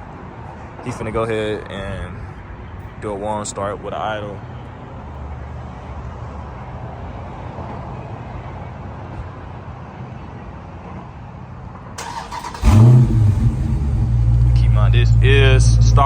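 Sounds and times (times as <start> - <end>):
car engine starting and idling: 12.0 - 16.0
low engine rumble: 12.0 - 16.0.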